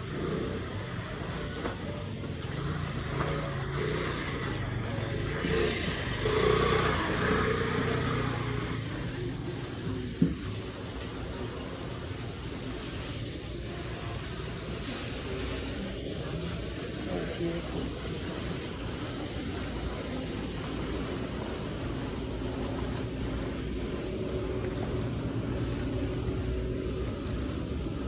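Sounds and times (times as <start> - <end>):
motor vehicle passing: 0.0 - 10.2.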